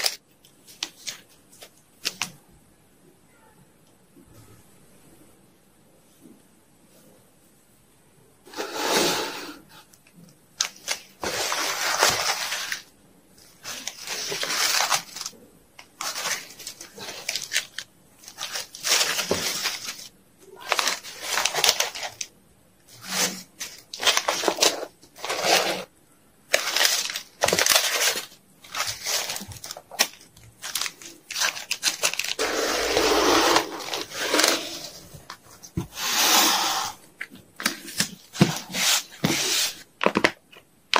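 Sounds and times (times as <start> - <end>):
packaging crinkling and rustling: 0.0 - 2.4, 10.6 - 22.3, 22.9 - 25.9, 26.5 - 36.0.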